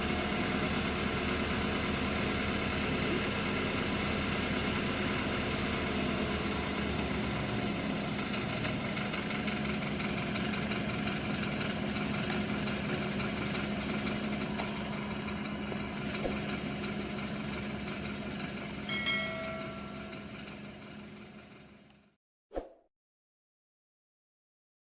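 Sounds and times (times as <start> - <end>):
car engine idling: 0.0 - 22.1
multi-tone chime: 18.8 - 20.5.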